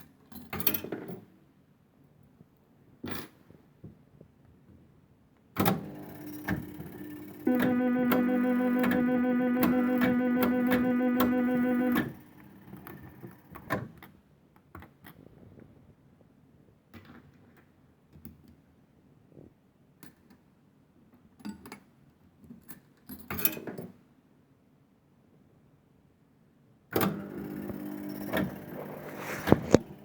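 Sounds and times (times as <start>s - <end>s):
fruit machine tune: 6.5s - 13.4s.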